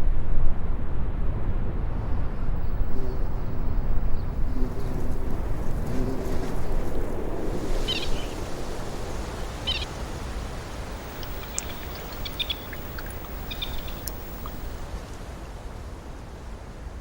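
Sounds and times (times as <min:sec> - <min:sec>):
high bird chirps: 0:07.8 - 0:08.4, 0:09.6 - 0:09.9, 0:11.0 - 0:14.8
steady low rumble: 0:10.7 - 0:14.9.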